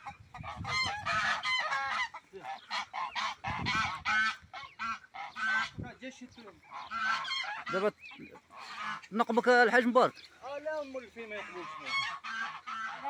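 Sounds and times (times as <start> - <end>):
poultry calling: 0.0 - 13.0.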